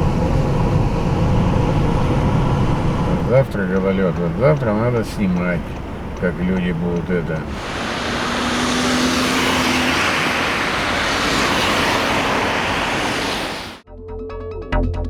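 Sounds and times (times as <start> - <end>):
car passing close: 0.0 - 13.8
low engine hum: 0.0 - 13.8.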